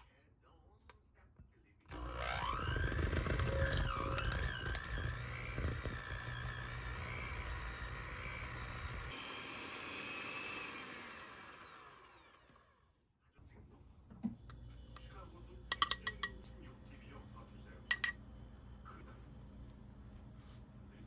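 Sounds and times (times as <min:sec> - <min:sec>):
small electric motor whining: 0:01.9 - 0:12.9
light clinks: 0:15.7 - 0:16.4.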